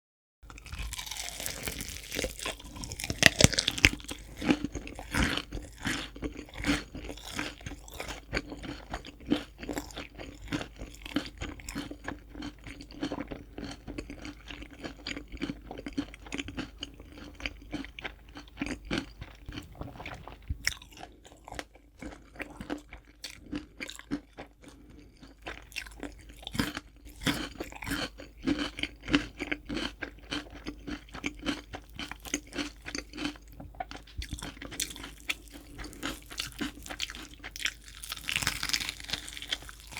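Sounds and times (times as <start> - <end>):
crunching fried chicken: 0.4 - 39.9.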